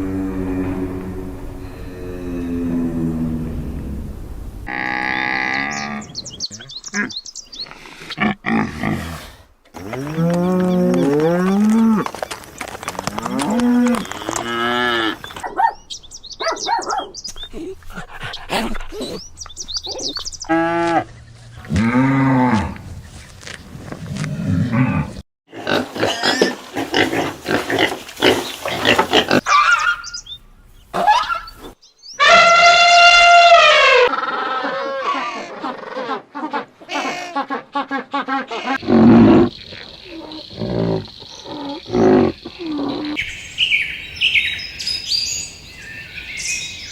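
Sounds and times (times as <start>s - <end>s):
farm animal calls: 4.7s - 9.0s, 9.7s - 17.7s, 28.2s - 46.9s.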